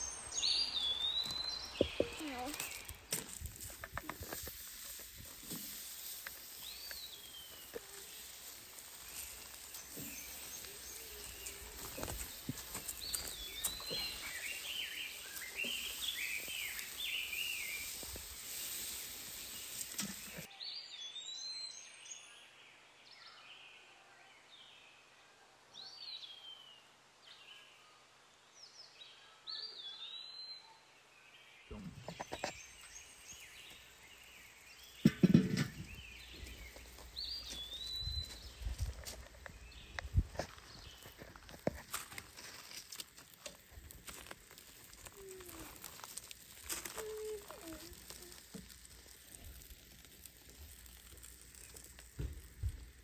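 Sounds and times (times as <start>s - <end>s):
birds chirping and singing: 0.0s - 3.4s, 6.3s - 18.2s, 35.7s - 41.6s
steady hiss: 0.0s - 20.5s, 31.8s - 53.0s.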